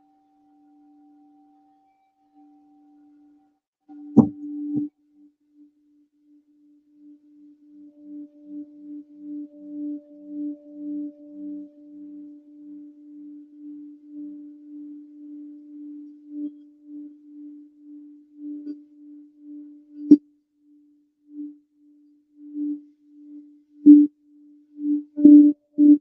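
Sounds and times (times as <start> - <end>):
crystal singing bowl tone: 0.0 - 5.0, 6.6 - 20.2, 21.3 - 26.0.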